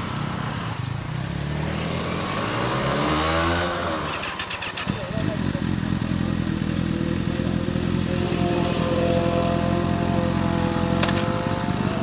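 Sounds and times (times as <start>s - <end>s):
motorcycle engine running: 3.7s - 12.0s.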